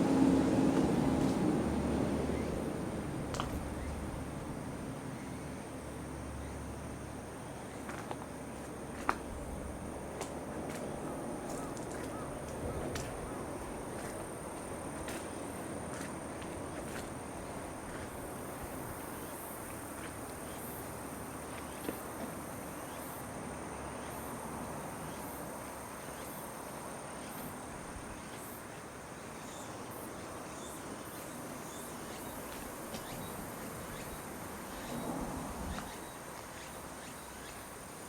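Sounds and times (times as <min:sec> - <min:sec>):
rustle: 0:00.0 - 0:38.0
insects trilling: 0:09.4 - 0:38.0.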